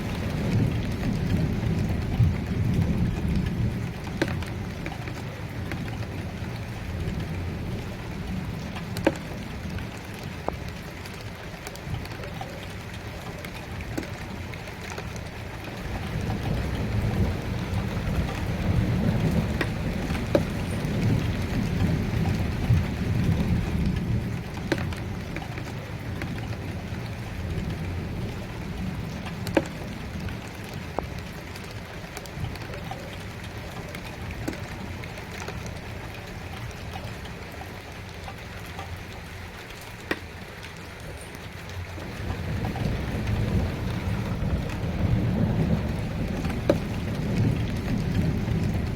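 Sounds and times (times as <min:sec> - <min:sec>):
low rolling thunder: 0:00.0 - 0:10.1, 0:15.4 - 0:30.9, 0:42.0 - 0:48.9
steady rain falling: 0:00.0 - 0:48.9.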